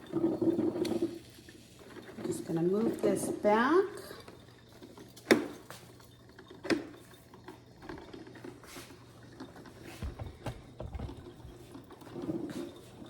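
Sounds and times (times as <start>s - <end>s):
kitchen items clattering: 0.0s - 13.0s
dull thumps: 10.0s - 11.7s.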